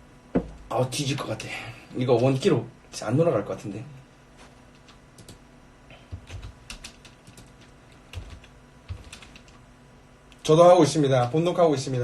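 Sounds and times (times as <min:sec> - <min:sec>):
keyboard typing clicks: 0:06.1 - 0:09.6.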